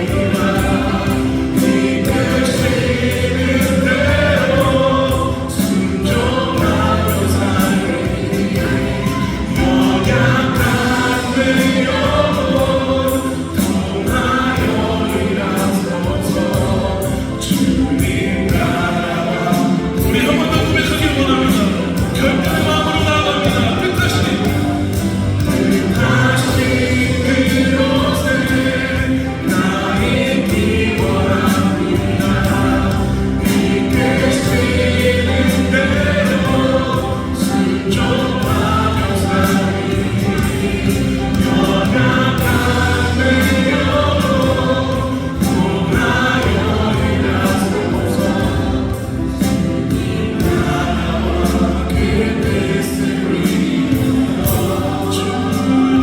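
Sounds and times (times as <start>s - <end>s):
gospel choir singing: 0.0s - 56.0s.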